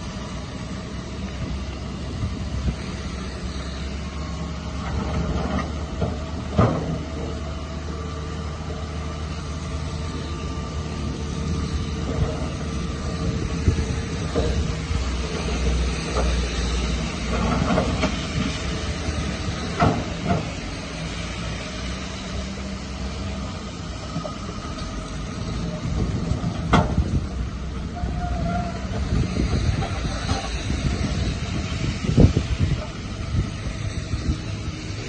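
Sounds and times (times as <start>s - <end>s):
diesel engine rumbling: 0.0s - 35.0s.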